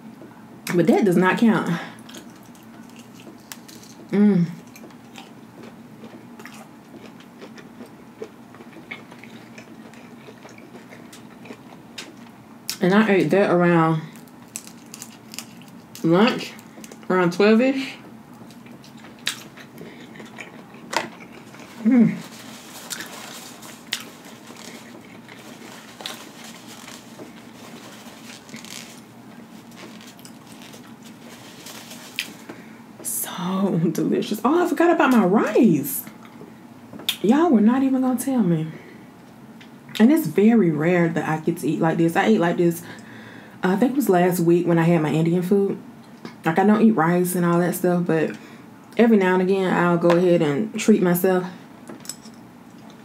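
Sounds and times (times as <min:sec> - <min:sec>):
faint steady hum: 0:00.0 - 0:53.0
chewing with wet clicks: 0:02.0 - 0:12.8, 0:18.4 - 0:21.6.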